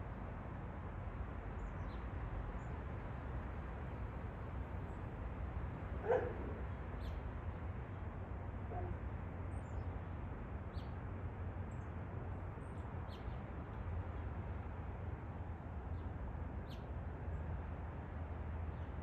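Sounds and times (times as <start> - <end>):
bark-like animal call: 6.0 - 6.6, 8.7 - 9.0.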